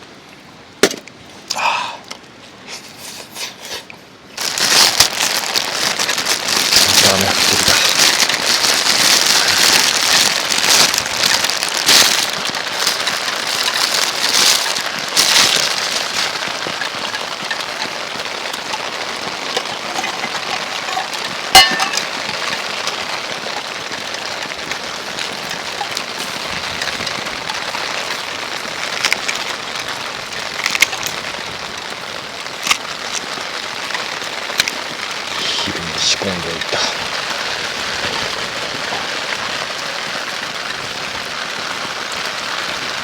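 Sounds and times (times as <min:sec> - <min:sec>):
rain falling: 0:00.0 - 0:43.0.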